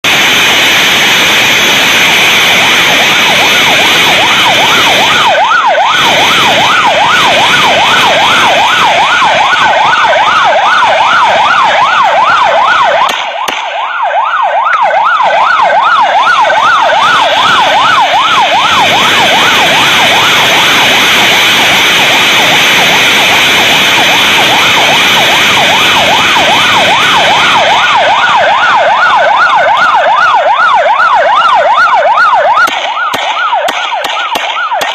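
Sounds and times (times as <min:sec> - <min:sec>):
police siren yelping: 0:00.0 - 0:34.9
wind and road noise: 0:00.0 - 0:34.9.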